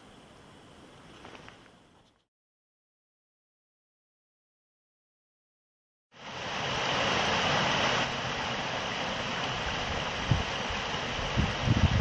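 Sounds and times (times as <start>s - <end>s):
wind buffeting microphone: 9.5s - 12.0s.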